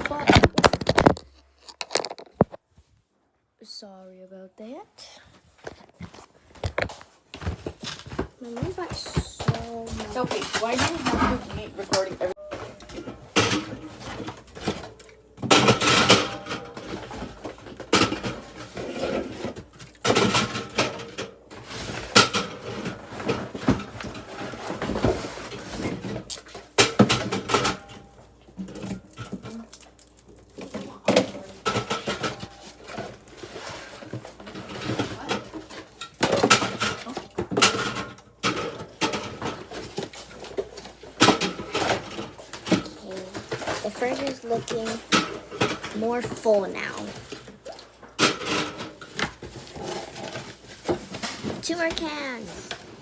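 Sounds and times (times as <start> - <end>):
drink cans clinking: 8.6 - 21.5.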